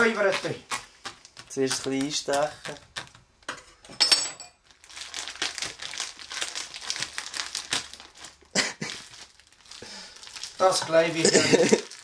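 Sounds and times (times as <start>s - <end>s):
plastic packaging crinkling: 4.6s - 12.0s.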